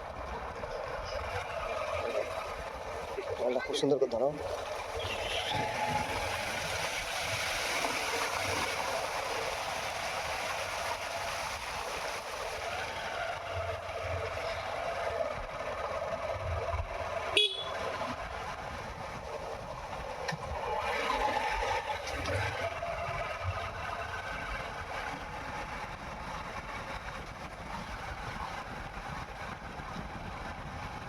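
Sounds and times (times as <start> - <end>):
road noise: 0.0 - 31.0
motorcycle engine running: 12.5 - 31.0.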